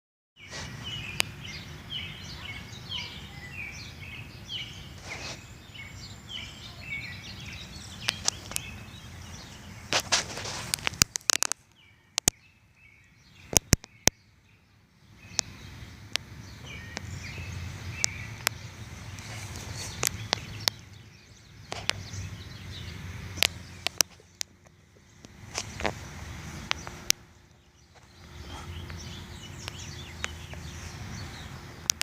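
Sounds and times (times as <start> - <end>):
small birds chirping: 0.4 - 32.0
sharp clicks: 7.9 - 8.8, 9.9 - 12.4, 18.0 - 21.0, 21.6 - 22.2, 23.3 - 26.0, 26.6 - 29.0, 31.8 - 32.0.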